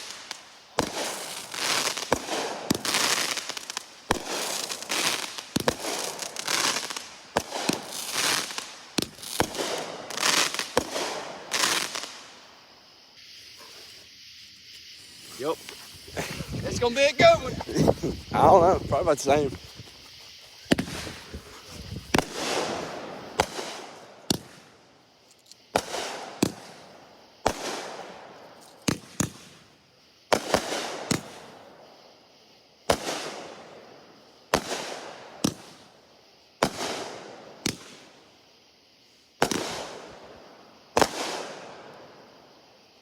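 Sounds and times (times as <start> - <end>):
firework bangs: 0.0 - 12.4, 20.6 - 24.8, 25.7 - 29.6, 30.3 - 31.6, 32.9 - 33.8, 34.5 - 35.8, 36.6 - 38.1, 39.4 - 41.9
firework crackle: 0.0 - 32.1, 32.8 - 43.0.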